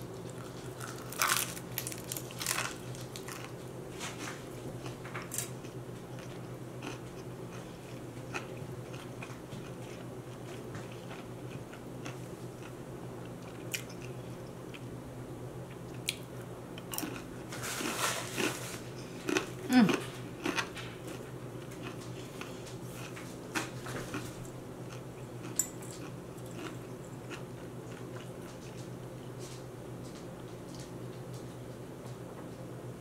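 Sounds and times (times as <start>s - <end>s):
person crunching fried food: 0.1s - 3.6s, 4.8s - 10.0s, 16.8s - 25.1s, 26.0s - 28.2s.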